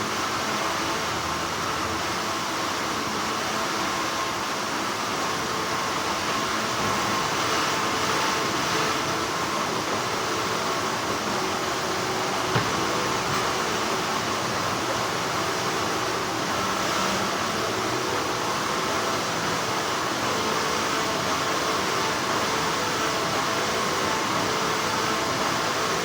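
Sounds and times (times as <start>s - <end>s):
factory machinery humming: 0.0s - 26.0s.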